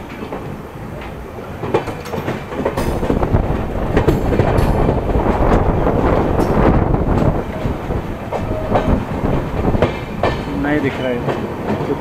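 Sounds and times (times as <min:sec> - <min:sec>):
train wheels clattering on track: 0:00.0 - 0:12.0.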